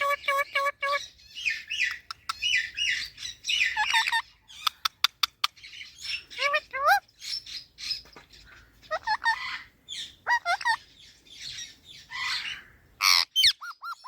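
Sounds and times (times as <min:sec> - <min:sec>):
parrot chirping and squawking: 0:00.0 - 0:14.0.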